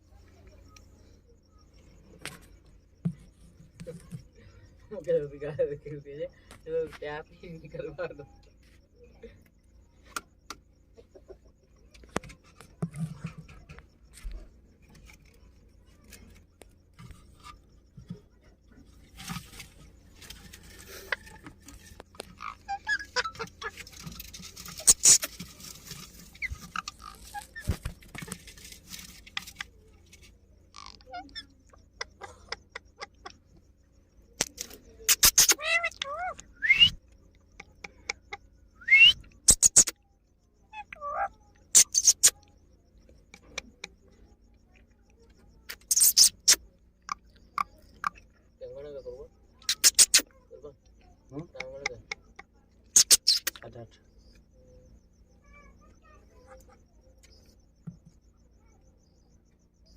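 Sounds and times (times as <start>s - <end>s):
small clicks and scratches: 11.8s - 38.5s, 41.5s - 48.3s, 49.4s - 55.2s
parrot chattering calls: 22.4s - 25.3s, 35.1s - 37.0s, 39.0s - 40.0s, 40.7s - 42.4s, 45.7s - 46.6s, 49.6s - 50.3s, 51.6s - 53.6s.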